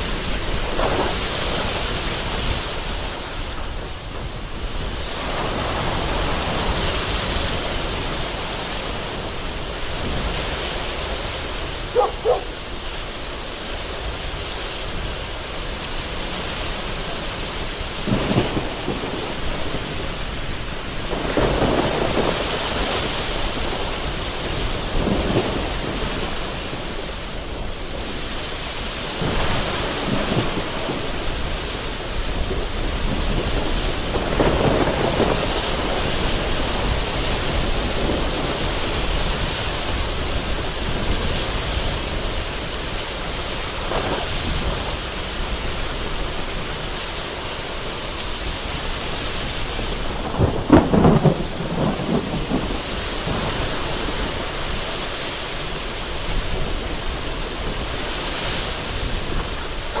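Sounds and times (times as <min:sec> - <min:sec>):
low rolls of thunder: 0:00.0 - 0:28.2, 0:29.2 - 0:43.0, 0:49.4 - 0:58.0, 0:58.8 - 1:00.0
gusty wind: 0:00.0 - 1:00.0
heavy rain falling: 0:00.0 - 1:00.0
loud thunderclap: 0:16.8 - 0:20.4, 0:21.0 - 0:27.0, 0:29.2 - 0:42.6, 0:49.6 - 0:55.2, 0:58.9 - 1:00.0.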